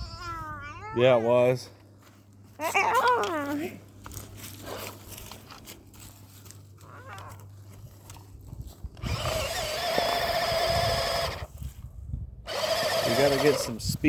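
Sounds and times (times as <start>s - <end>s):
electric motor whining: 9.0s - 11.6s, 12.4s - 14.0s.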